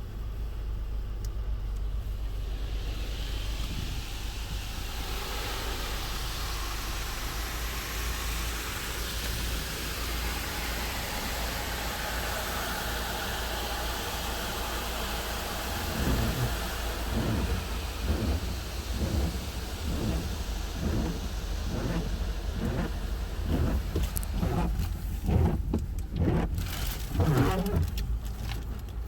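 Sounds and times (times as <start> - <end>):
low rumble: 0.0 - 8.6, 15.6 - 29.0
car wash rushing hiss: 0.0 - 29.0
heavy low thuds and drumming: 15.8 - 28.0.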